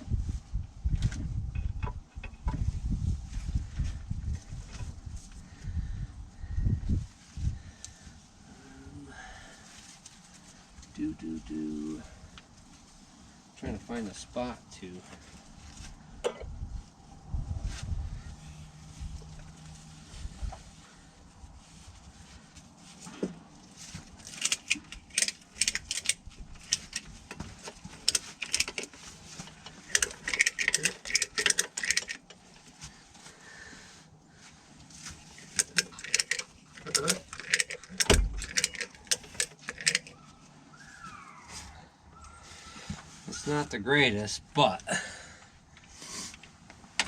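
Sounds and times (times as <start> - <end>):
ratchet strap clicking and jingling: 24.2 - 32.7, 35.2 - 40.2.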